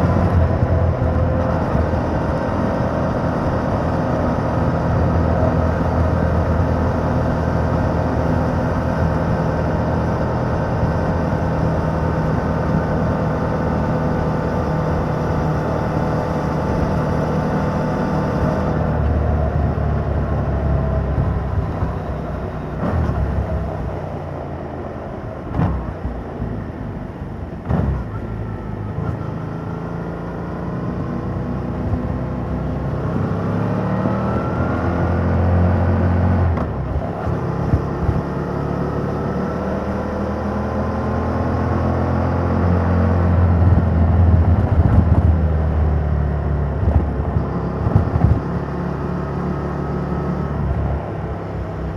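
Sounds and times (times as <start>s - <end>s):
engine thumps: 46.8s - 48.6s.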